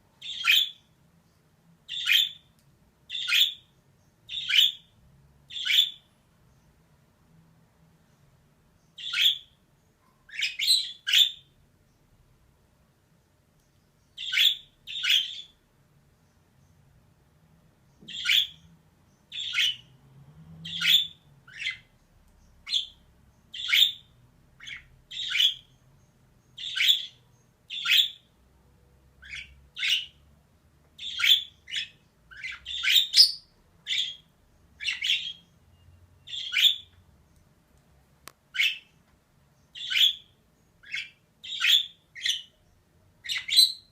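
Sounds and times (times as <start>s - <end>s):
budgerigar harsh chirps: 14.2s - 15.5s, 18.1s - 18.6s, 26.6s - 28.3s, 31.0s - 35.5s, 36.3s - 36.9s, 43.2s - 43.9s.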